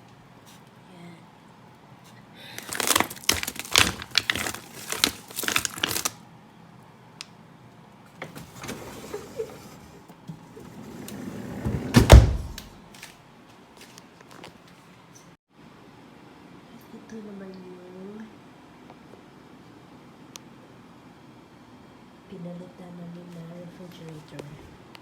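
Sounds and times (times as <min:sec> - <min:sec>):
refrigerator door sliding shut: 0:02.7 - 0:06.1, 0:08.2 - 0:12.8
containers clattering in drawer: 0:08.2 - 0:12.8.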